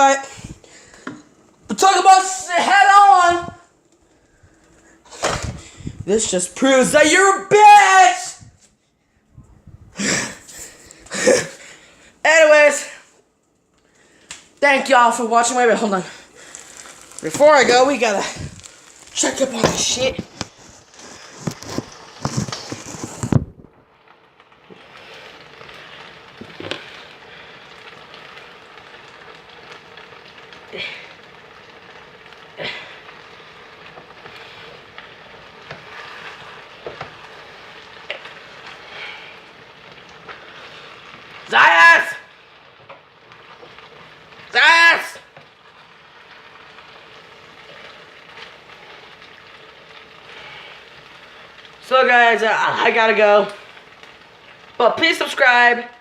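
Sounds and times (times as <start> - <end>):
food sizzling in a frying pan: 13.8 - 56.0.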